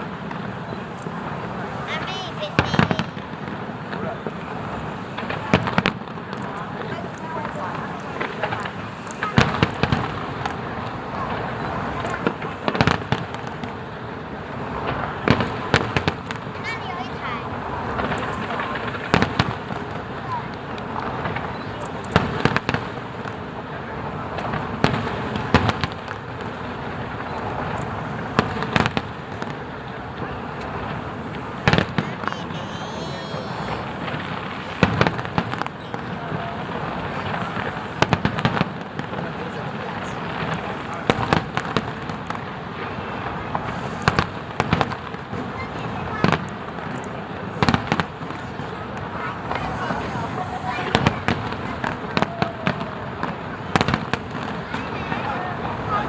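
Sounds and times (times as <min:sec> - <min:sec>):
background noise: 0:00.0 - 0:56.0
fireworks shells bursting: 0:00.0 - 0:56.0
noisy rumble: 0:45.2 - 0:56.0.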